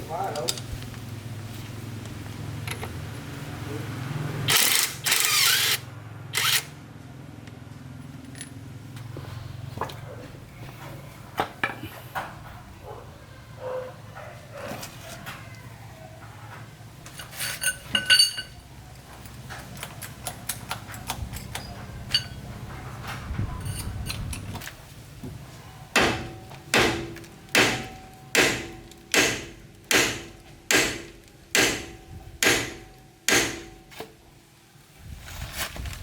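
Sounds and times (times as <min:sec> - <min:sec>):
metal parts clinking: 0:17.1 - 0:18.6, 0:19.7 - 0:22.5.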